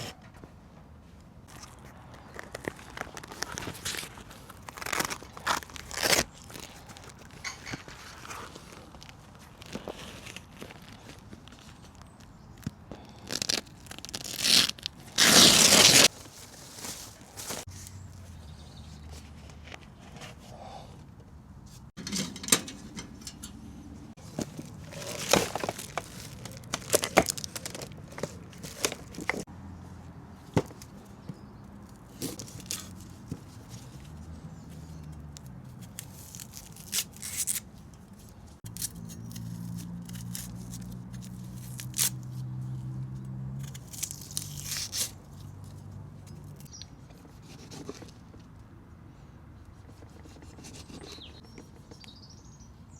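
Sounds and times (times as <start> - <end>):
packaging crinkling: 24.4 - 29.5.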